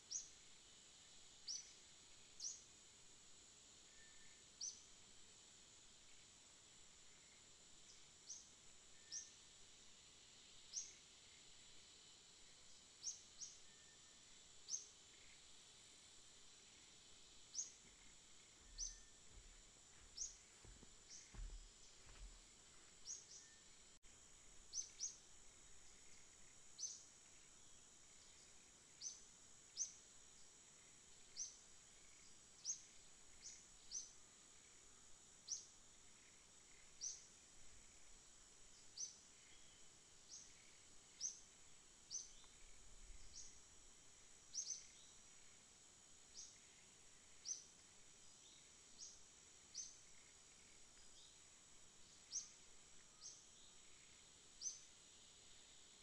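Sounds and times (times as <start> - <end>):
faint high-pitched hiss: 0.0 - 56.0
small bird chirping: 17.4 - 23.7, 24.6 - 27.5, 38.8 - 43.6, 44.5 - 45.2, 52.0 - 54.9.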